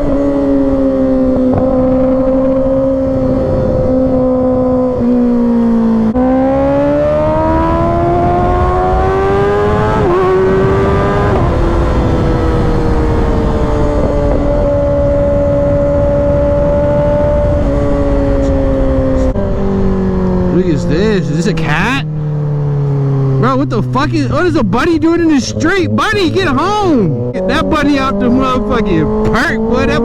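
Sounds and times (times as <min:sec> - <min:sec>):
wind rush: 0:00.0 - 0:05.1, 0:07.1 - 0:22.4
motorcycle engine accelerating: 0:00.0 - 0:30.0.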